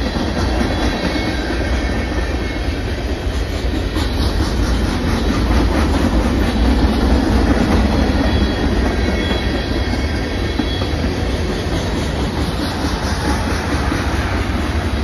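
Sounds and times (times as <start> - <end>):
train wheels rumbling on rails: 0.0 - 15.0
faint wheel squeal: 7.4 - 12.0.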